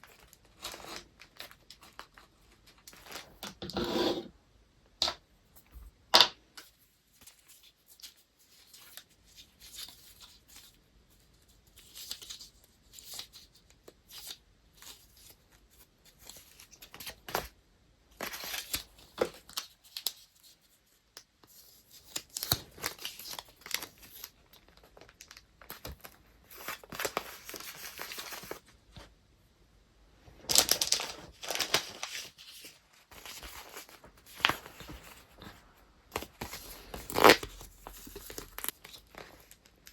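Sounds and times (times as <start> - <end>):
paper crinkling and rustling: 0.0 - 3.6, 18.2 - 29.1, 30.4 - 39.9.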